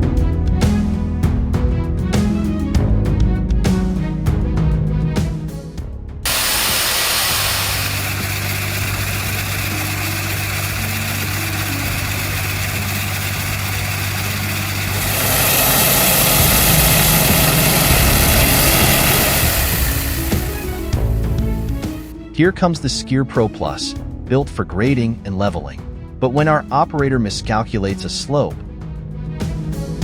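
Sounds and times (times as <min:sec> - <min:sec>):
heavy machine engine humming: 0:06.3 - 0:22.1
loud hissing: 0:06.3 - 0:22.1.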